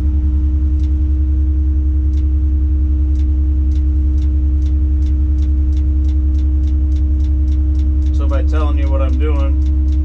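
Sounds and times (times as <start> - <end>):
light ticks: 0.8 - 1.0, 2.1 - 2.3, 3.1 - 10.0.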